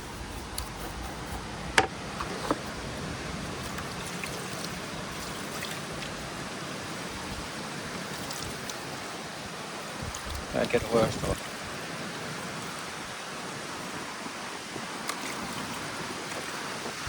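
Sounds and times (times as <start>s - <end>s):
water spraying: 0.0s - 13.2s.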